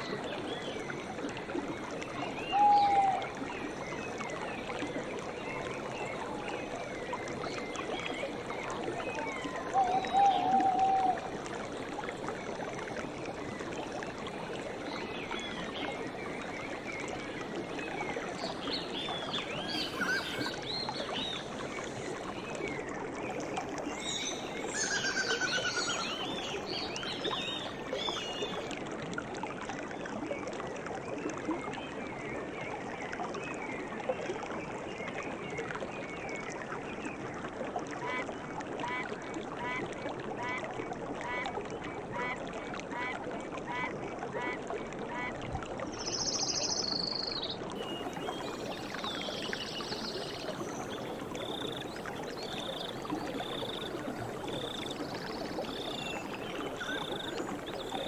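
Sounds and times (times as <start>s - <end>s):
flowing water: 0.0s - 58.0s
birds chirping: 19.5s - 22.0s, 46.2s - 58.0s.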